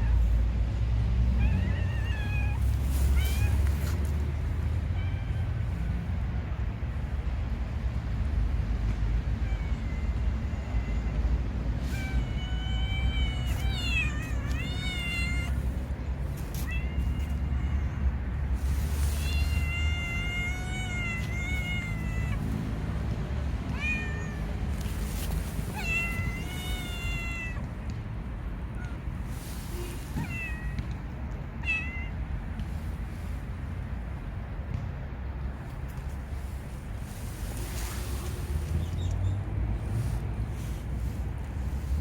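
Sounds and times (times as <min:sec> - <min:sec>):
cat meowing: 0:01.2 - 0:06.1, 0:09.3 - 0:11.2, 0:11.8 - 0:22.6, 0:23.7 - 0:27.7, 0:29.7 - 0:30.9, 0:31.6 - 0:32.2.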